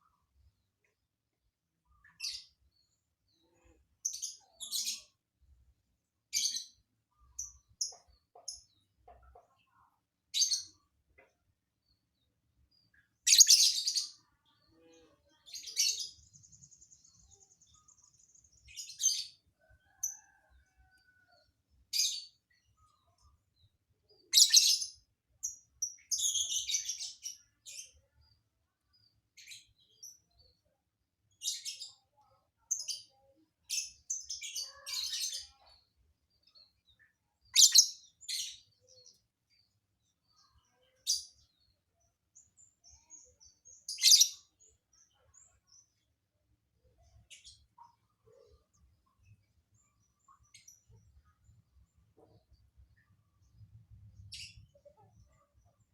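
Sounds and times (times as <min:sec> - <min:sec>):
lovebird chirping: 0:13.3 - 0:14.2, 0:37.5 - 0:38.6.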